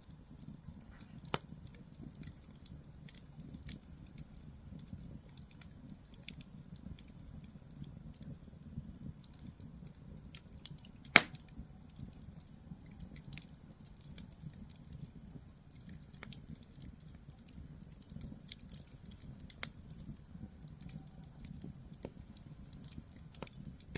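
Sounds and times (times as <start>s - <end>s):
firewood crackling: 0.0s - 23.9s
loud sharp pop: 11.2s - 11.4s.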